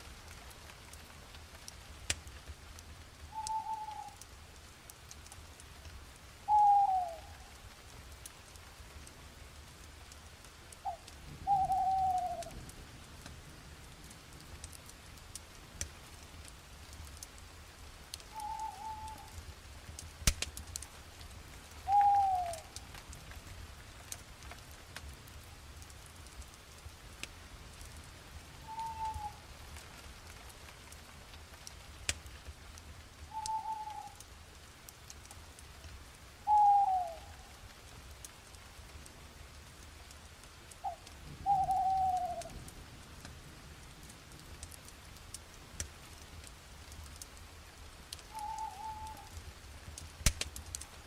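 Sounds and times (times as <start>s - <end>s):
steady hiss: 0.0s - 51.0s
sharp clicks: 20.0s - 20.6s, 50.2s - 50.8s.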